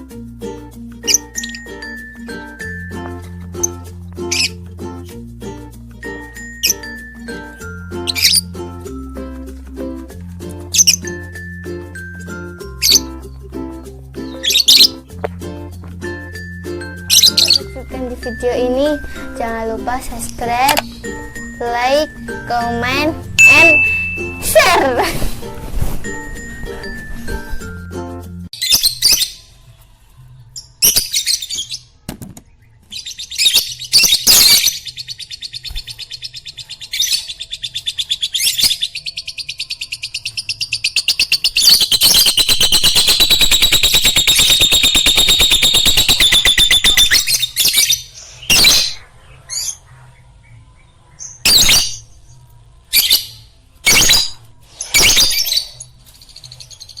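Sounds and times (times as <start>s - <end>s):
lovebirds chirping: 0.5s - 4.7s, 6.0s - 9.4s, 10.6s - 15.7s, 16.7s - 25.1s, 30.6s - 52.4s.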